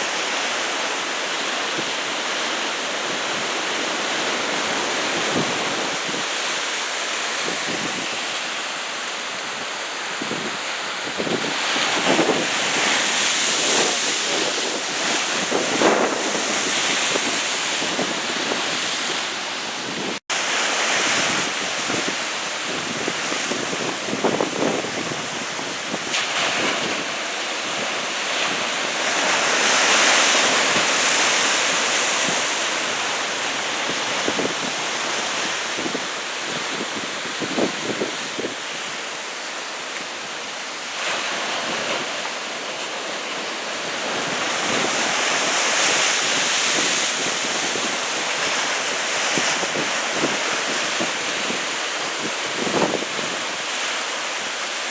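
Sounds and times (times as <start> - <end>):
heavy surf breaking: 0.0 - 54.9
wind buffeting microphone: 9.3 - 20.2, 43.8 - 53.9.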